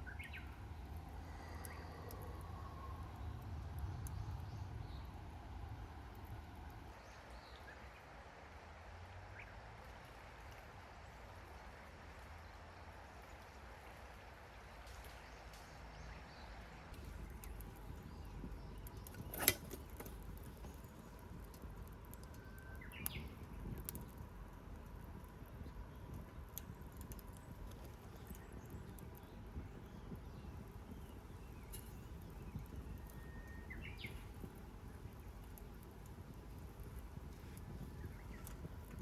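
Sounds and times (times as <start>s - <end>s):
faint bird chirps: 28.2s - 35.3s.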